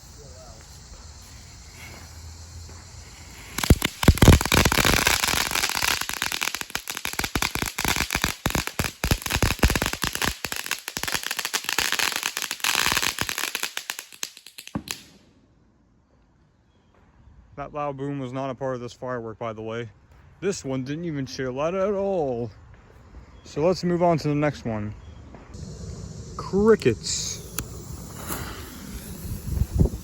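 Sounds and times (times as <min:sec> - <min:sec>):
firework crackling: 0:00.0 - 0:15.2, 0:25.5 - 0:30.0.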